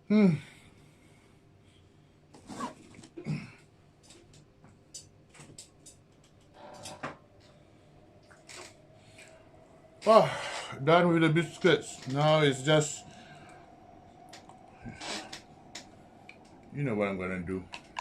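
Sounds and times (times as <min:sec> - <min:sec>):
person humming murmurs: 0:00.0 - 0:00.5.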